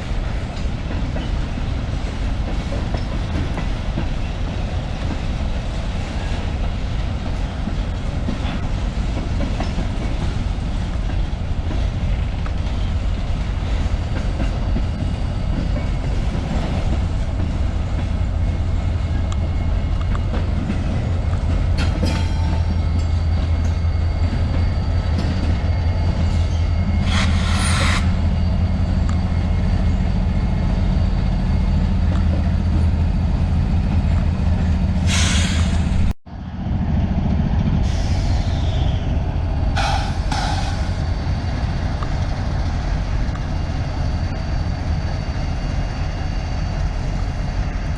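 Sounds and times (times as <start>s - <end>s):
rail joints clickety-clack: 0.0s - 47.9s
train wheels rumbling on rail: 0.0s - 47.9s
high hissing screech: 26.9s - 28.4s.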